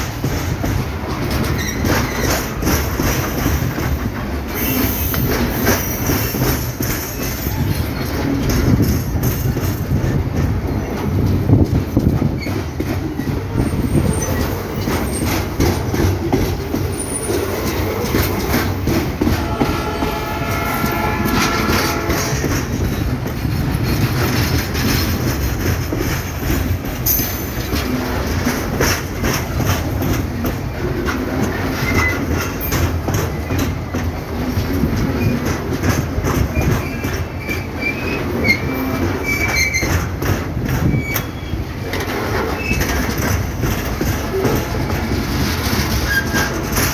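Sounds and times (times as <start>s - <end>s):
low train rumble: 0.0s - 46.9s
train wheels clacking over joints: 0.0s - 46.9s.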